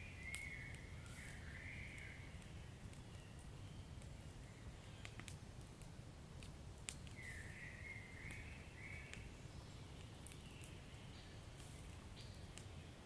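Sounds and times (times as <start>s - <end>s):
faint high hiss: 0.0s - 13.0s
fireplace fire crackling: 0.0s - 13.0s.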